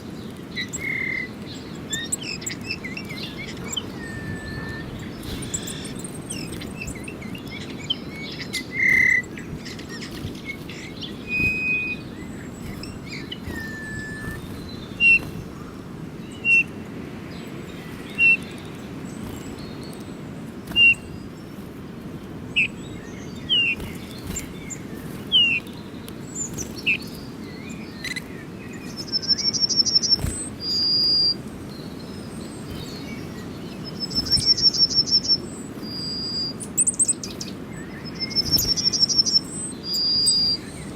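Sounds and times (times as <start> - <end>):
small birds chirping: 0.0 - 40.9
high bird trill: 0.8 - 16.8.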